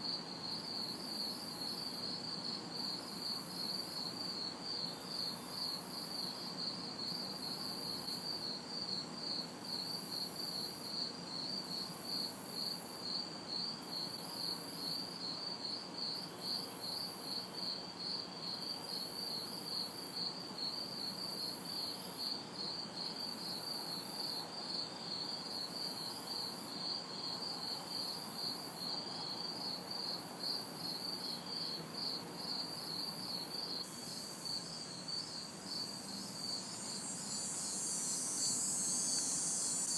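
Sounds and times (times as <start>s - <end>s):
crickets chirping: 0.0s - 39.9s
high-pitched insect buzz: 33.7s - 39.9s.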